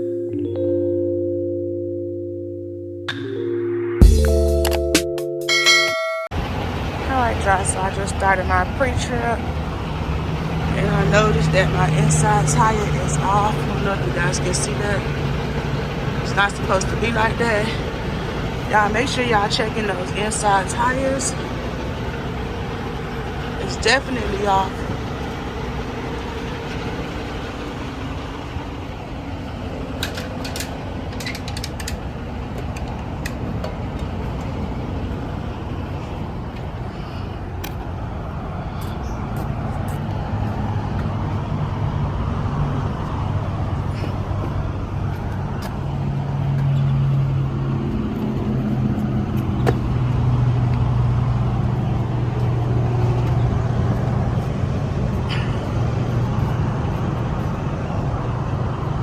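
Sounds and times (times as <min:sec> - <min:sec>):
diesel truck engine idling: 0:06.3 - 0:59.0.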